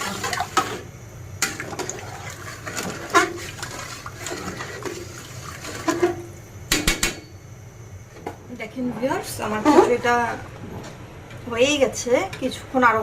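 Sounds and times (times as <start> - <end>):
thick stew bubbling in a pot: 0.0 - 6.2.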